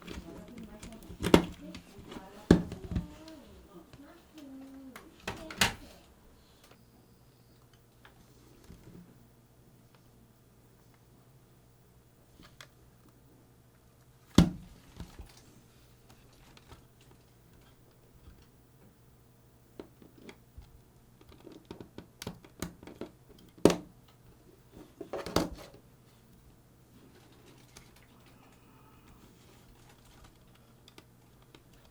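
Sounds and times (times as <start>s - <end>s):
plastic parts clicking and knocking: 0.0s - 3.3s, 19.8s - 24.2s
faint steady hum: 0.0s - 31.9s.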